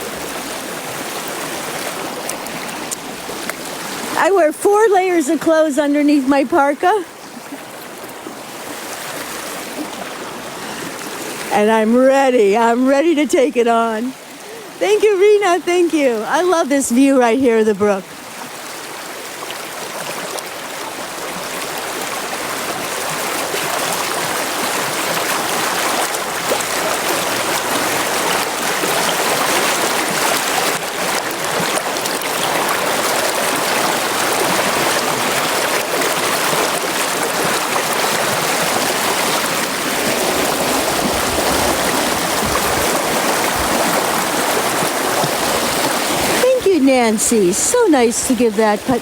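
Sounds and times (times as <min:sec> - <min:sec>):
brook flowing water: 0:00.0 - 0:49.0.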